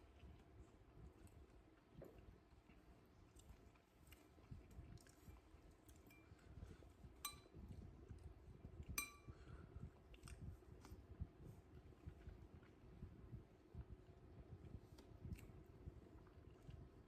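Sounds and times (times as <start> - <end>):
soft handling noises of eating: 0.0 - 17.0
cutlery clinking against dish: 9.0 - 9.3.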